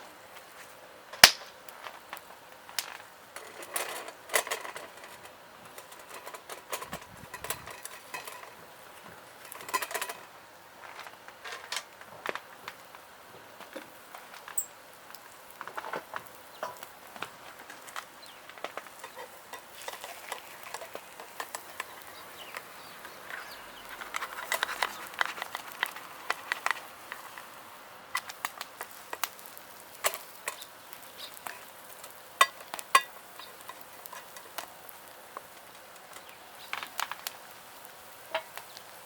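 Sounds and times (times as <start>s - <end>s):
utensils clinking on cookware: 5.8s - 8.6s, 9.4s - 10.3s, 19.0s - 27.4s.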